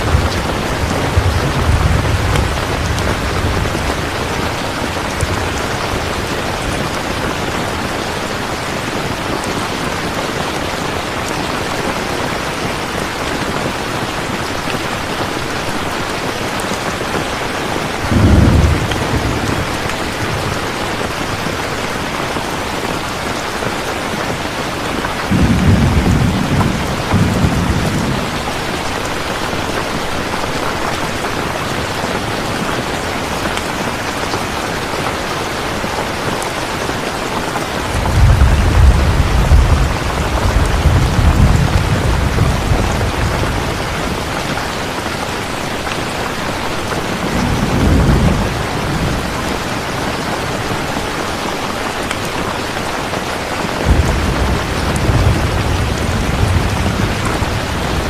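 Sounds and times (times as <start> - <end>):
deep rolls of thunder: 0.0 - 6.3, 18.1 - 19.8, 25.3 - 28.5, 37.9 - 44.2, 53.8 - 58.0
heavy rain: 0.0 - 58.0.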